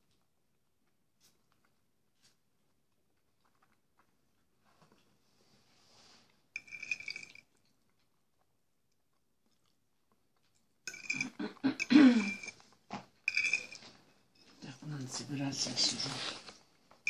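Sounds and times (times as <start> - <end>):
man chewing with wet mouth sounds: 0.0 - 5.2, 7.4 - 10.9.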